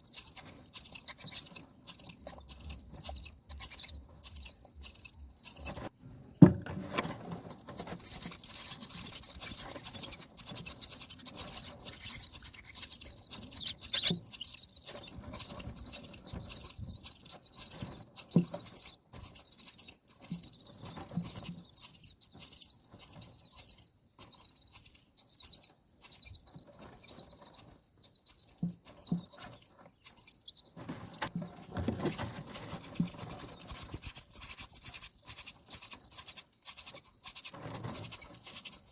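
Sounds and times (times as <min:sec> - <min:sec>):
nestlings chirping rapidly: 0:00.0 - 0:38.9
soft knock or rustle: 0:05.8 - 0:07.7.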